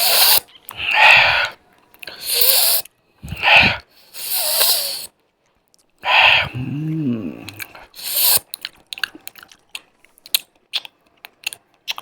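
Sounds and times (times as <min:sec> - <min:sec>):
person breathing heavily: 0:00.0 - 0:05.1, 0:06.0 - 0:08.4.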